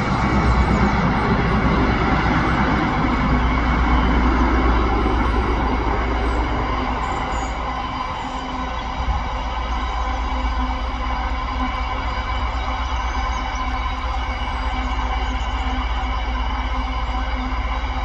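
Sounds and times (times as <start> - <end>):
freight train passing: 0.0 - 11.6.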